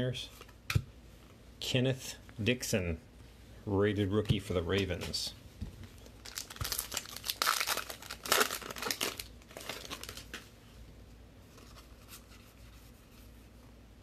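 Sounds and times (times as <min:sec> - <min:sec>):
wrapper crinkling and tearing: 0:06.0 - 0:10.4.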